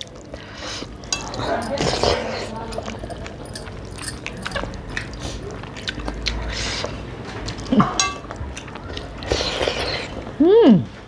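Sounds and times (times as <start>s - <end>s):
chewing and lip-smacking: 0.0s - 10.4s.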